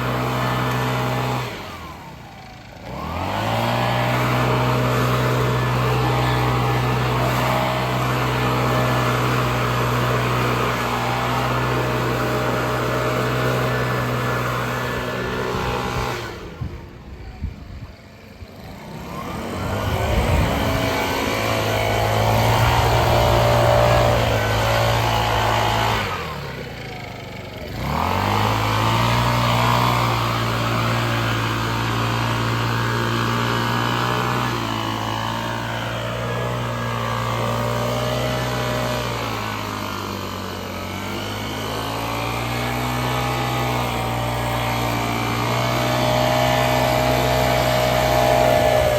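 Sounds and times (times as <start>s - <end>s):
small petrol engine revving: 0.0s - 48.9s.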